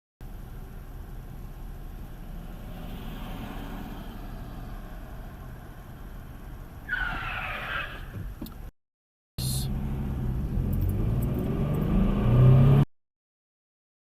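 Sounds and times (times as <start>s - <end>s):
car road and engine noise: 0.2s - 8.7s, 9.4s - 12.9s
tyre screech: 6.8s - 8.3s.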